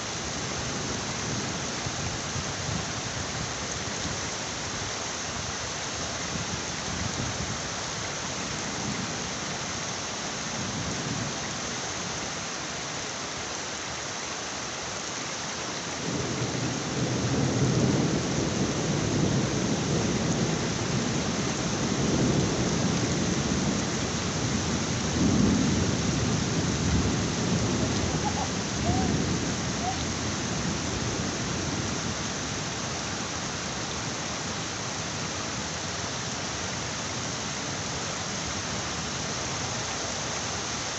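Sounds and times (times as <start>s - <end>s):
heavy rain: 0.0s - 40.9s
rolling thunder: 24.4s - 31.4s.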